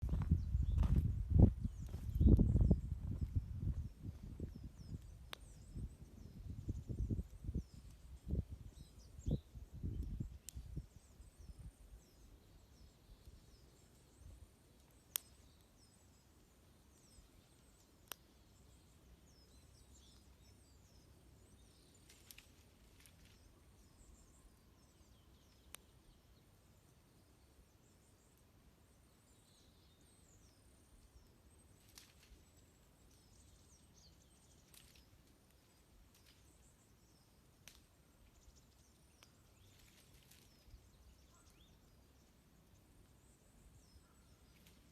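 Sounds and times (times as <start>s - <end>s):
small birds twittering: 0.0s - 44.9s
campfire wood popping: 21.9s - 23.5s, 37.6s - 37.9s.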